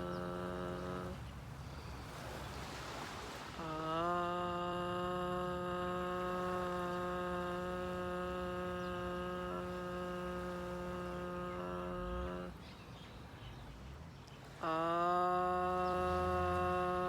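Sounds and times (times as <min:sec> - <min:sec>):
woman chanting long ah: 0:00.0 - 0:01.6, 0:03.4 - 0:13.6, 0:14.3 - 0:17.0.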